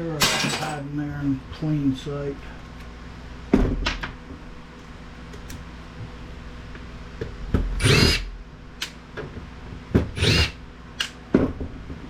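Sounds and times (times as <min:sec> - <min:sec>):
power drill motor whine: 0:07.8 - 0:08.3, 0:10.2 - 0:10.6.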